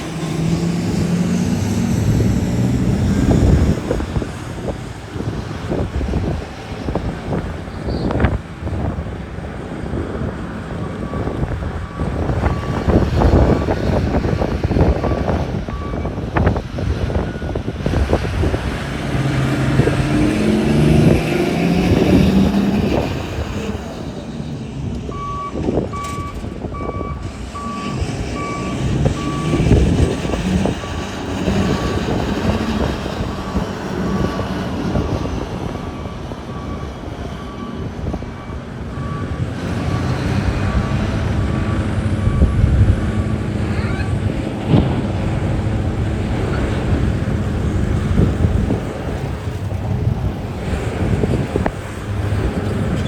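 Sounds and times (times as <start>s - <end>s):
diesel machinery engine running: 0.0s - 53.0s
reversing alarm beeping: 10.8s - 16.2s, 17.1s - 17.7s, 19.8s - 33.3s, 34.0s - 43.5s.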